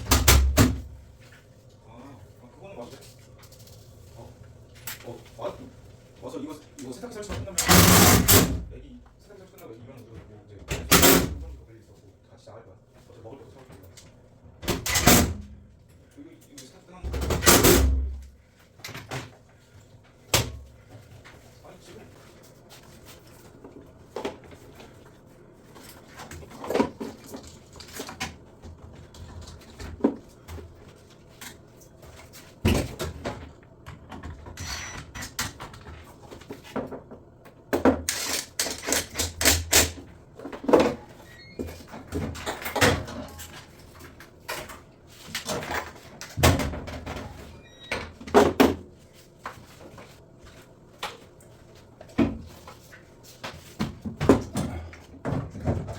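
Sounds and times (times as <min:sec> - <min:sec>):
washing machine parts clattering: 0:37.7 - 0:48.8.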